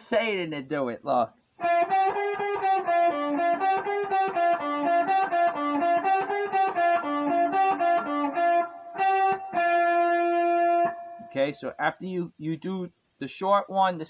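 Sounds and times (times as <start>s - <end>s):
guitar playing blues lick: 1.6s - 11.3s.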